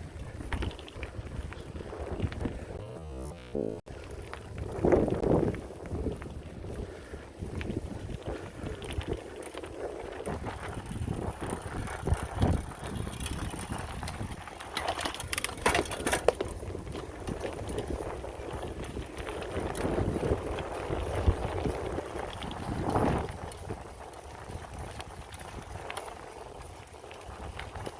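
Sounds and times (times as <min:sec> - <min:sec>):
bicycle clicks and rattles: 0:00.0 - 0:02.6, 0:04.0 - 0:22.7, 0:23.3 - 0:27.9
bike tyres on dirt trail: 0:00.0 - 0:02.8, 0:03.9 - 0:27.9
low thumps: 0:02.8 - 0:03.8
wind buffeting microphone: 0:04.4 - 0:14.4, 0:16.4 - 0:27.9.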